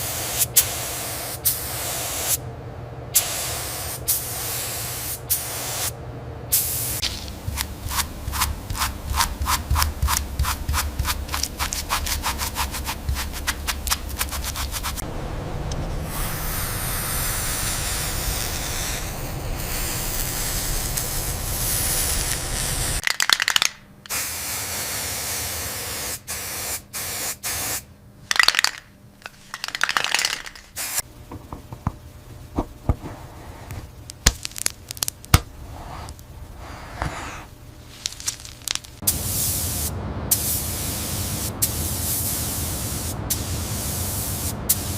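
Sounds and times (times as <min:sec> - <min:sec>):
spraying hiss: 0:16.1 - 0:23.0.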